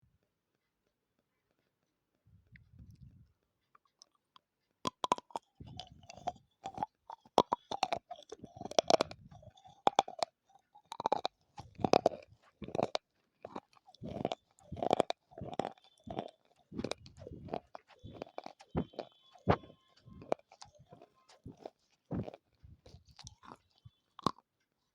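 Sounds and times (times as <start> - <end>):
grinding chewing: 3.6 - 24.9
clay chunks crunched by biting: 4.9 - 24.4.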